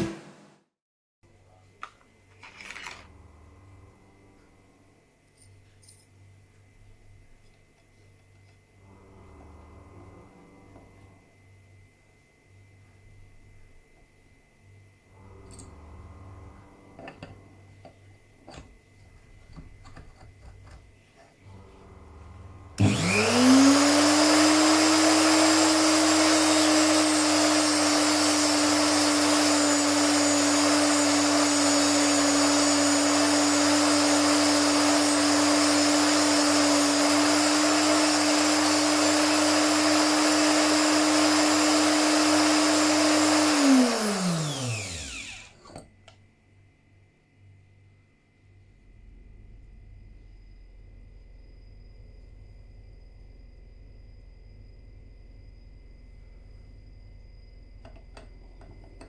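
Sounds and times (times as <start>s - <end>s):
electrode grinder motor whine: 21.5s - 45.8s.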